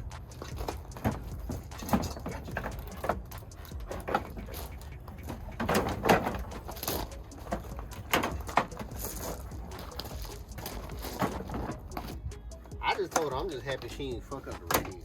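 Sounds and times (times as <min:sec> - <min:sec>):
knocks and clunks of car parts: 0:00.0 - 0:15.0.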